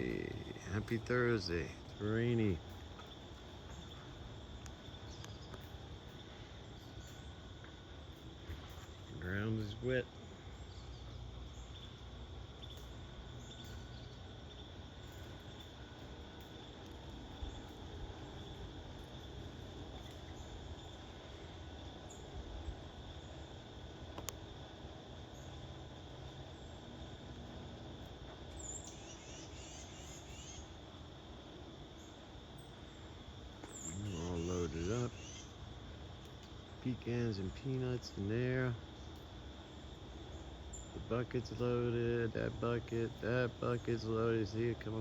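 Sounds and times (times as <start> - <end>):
insects droning: 0.0 - 45.0
low outdoor rumble: 0.0 - 45.0
steady hiss: 0.0 - 45.0
small bird twittering: 33.6 - 35.6.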